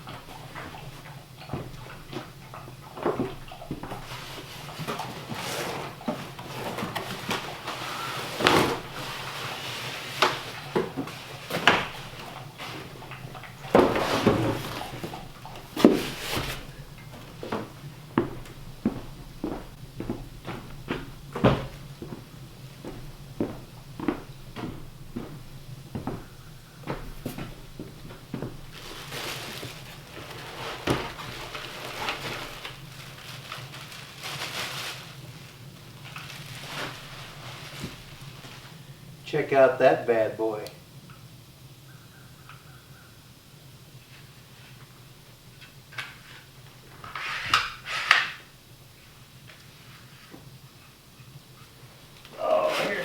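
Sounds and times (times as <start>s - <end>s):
packaging crinkling and rustling: 3.2s - 17.8s, 27.1s - 39.1s.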